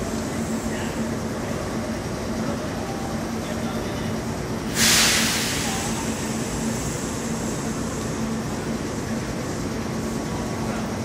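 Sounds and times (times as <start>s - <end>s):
stationary train humming: 0.0s - 11.0s
compressed air hiss: 4.7s - 7.9s.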